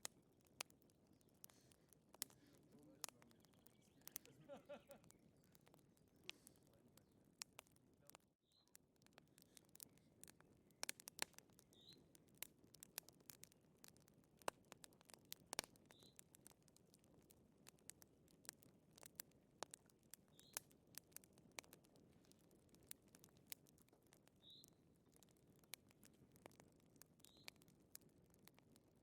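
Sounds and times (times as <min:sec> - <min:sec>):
wood fire crackling: 0:00.0 - 0:29.0
faint low hiss: 0:01.4 - 0:08.1.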